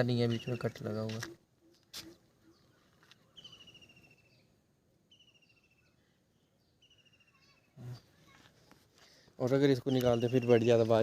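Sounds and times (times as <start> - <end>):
faint bird trills: 1.6 - 4.4, 5.1 - 8.4.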